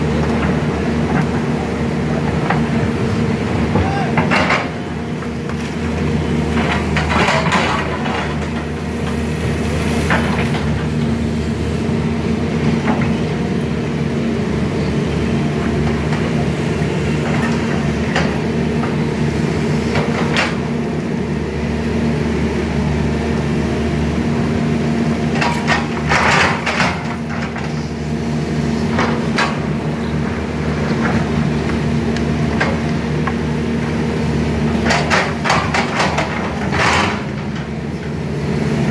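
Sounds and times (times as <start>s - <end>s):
excavator diesel engine running: 0.0s - 38.9s
metallic clanks and knocks: 0.3s - 5.8s, 6.5s - 8.8s, 34.7s - 37.9s.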